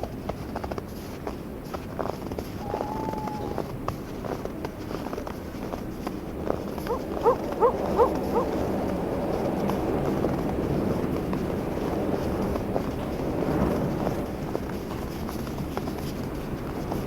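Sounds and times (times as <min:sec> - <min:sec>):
wind blowing: 0:02.6 - 0:03.8, 0:06.6 - 0:10.8.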